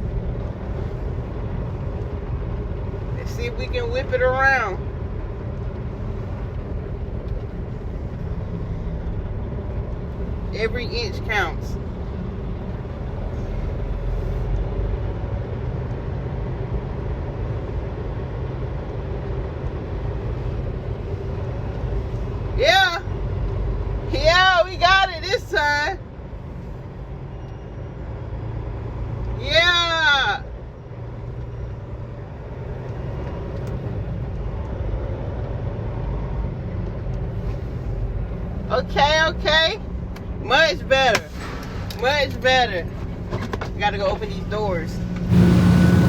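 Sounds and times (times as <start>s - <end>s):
diesel truck engine rumbling: 0.0s - 46.0s
truck diesel engine running: 37.4s - 46.0s.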